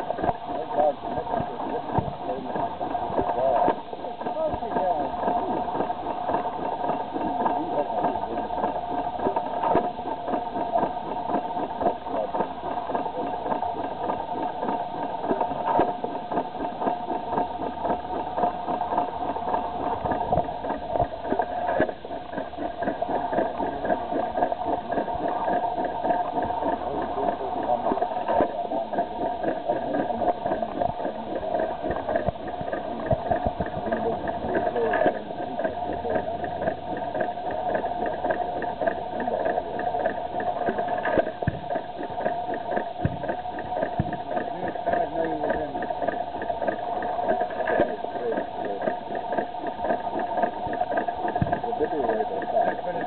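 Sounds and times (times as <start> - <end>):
stationary engine beat: 0.0 - 53.0
steady mechanical hum: 0.0 - 53.0.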